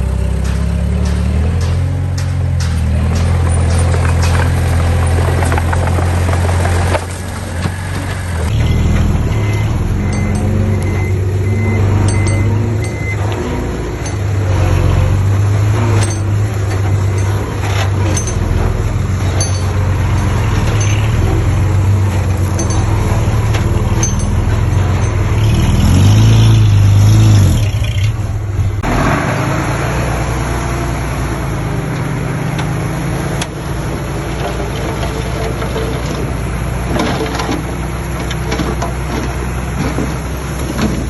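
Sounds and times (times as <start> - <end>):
diesel machinery engines running: 0.0 - 41.0
metallic clinks: 8.5 - 26.5.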